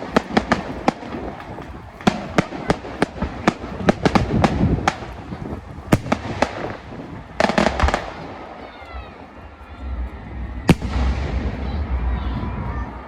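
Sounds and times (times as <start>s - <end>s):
fireworks bangs and cracks: 0.0s - 13.0s
low rumble: 8.8s - 13.0s.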